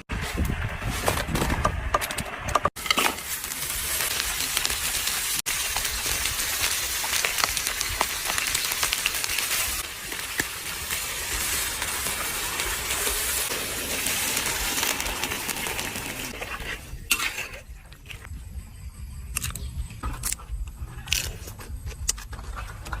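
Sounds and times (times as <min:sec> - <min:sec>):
food sizzling in a pan: 0:02.8 - 0:16.4.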